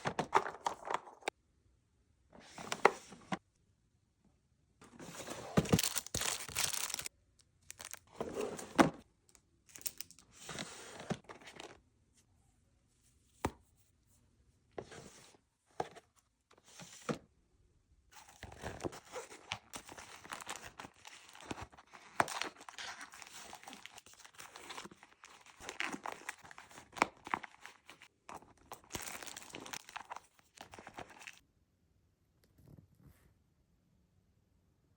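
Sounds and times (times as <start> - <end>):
packaging crinkling and rustling: 5.1 - 8.9, 9.7 - 10.2, 18.2 - 31.4.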